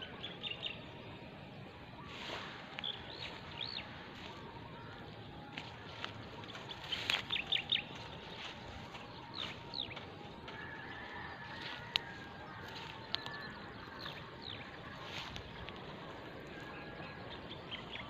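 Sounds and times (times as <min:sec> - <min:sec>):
bird chirping: 0:00.0 - 0:18.0
outdoor background noise: 0:00.0 - 0:18.0.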